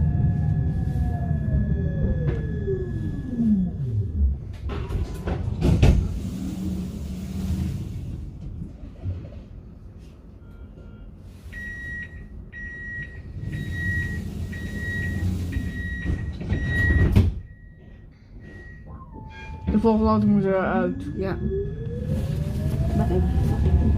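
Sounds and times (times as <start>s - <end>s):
tram running rumble: 0.0s - 11.4s, 12.3s - 23.9s
high electronic beeps: 18.4s - 22.4s.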